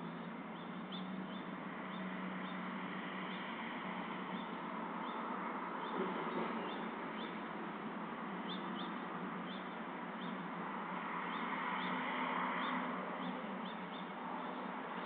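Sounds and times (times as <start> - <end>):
songbird chirping: 0.0 - 3.7, 8.4 - 10.5, 11.1 - 15.0.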